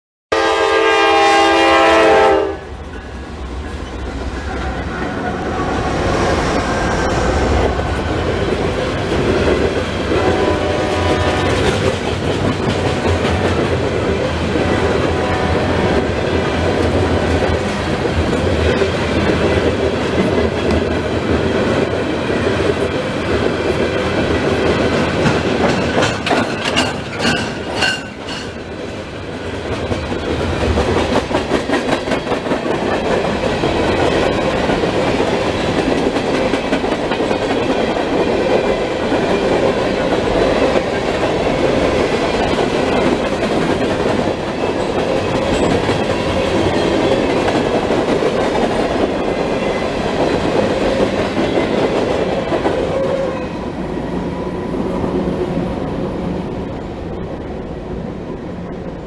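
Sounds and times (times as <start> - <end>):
locomotive horn blasting: 0.3 - 2.8, 10.1 - 11.6
freight train rolling past: 0.3 - 59.0.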